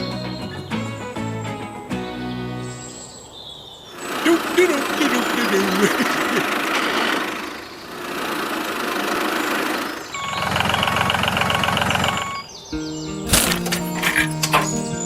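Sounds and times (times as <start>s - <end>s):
small engine chugging: 4.0s - 12.4s.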